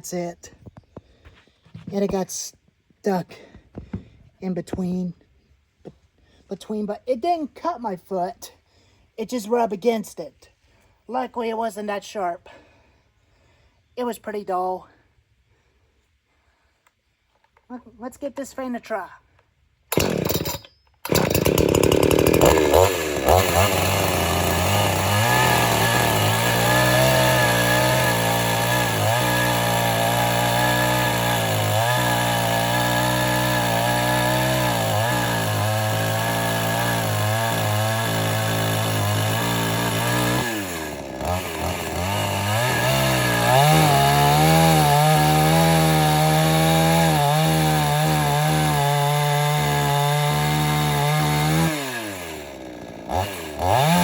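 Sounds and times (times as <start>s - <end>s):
chainsaw engine running: 19.9s - 54.0s.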